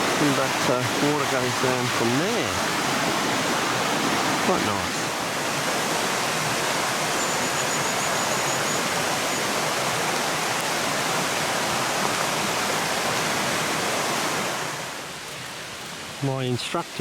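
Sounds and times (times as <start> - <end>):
waterfall roaring: 0.0 - 17.0
faint high-pitched trill: 7.2 - 9.4.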